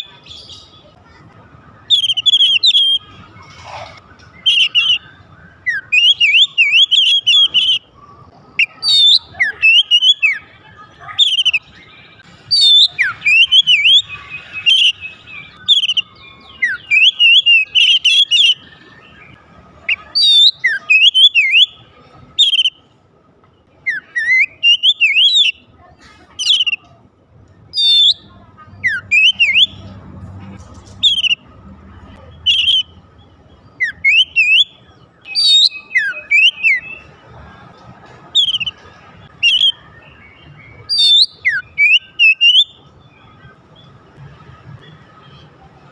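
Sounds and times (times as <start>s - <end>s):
magpie-robin singing whistles: 1.8s - 3.2s, 4.3s - 7.9s, 8.6s - 10.5s, 11.1s - 22.8s, 23.8s - 25.6s, 26.4s - 26.9s, 27.7s - 29.9s, 31.0s - 31.4s, 32.2s - 33.0s, 33.6s - 37.1s, 38.4s - 43.3s.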